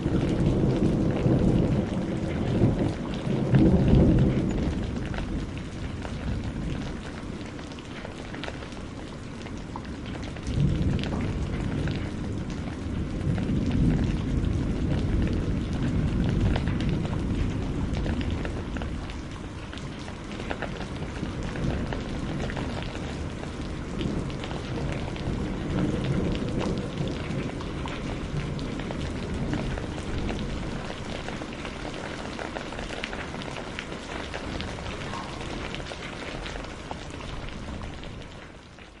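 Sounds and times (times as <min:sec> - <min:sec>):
low thunder rumble: 0:00.0 - 0:39.0
steady rain falling: 0:00.0 - 0:39.0.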